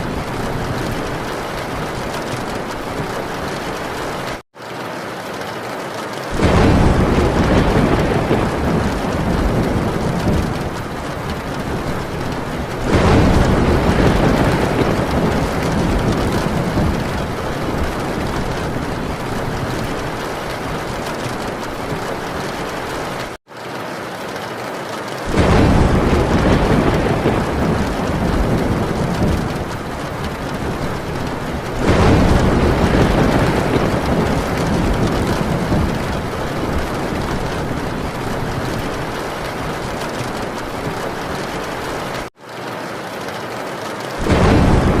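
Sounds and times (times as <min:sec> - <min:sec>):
thunder rumbling: 0:00.0 - 0:04.4, 0:06.3 - 0:23.4, 0:25.2 - 0:42.3, 0:44.2 - 0:45.0
heavy rain on a tin roof: 0:00.0 - 0:45.0.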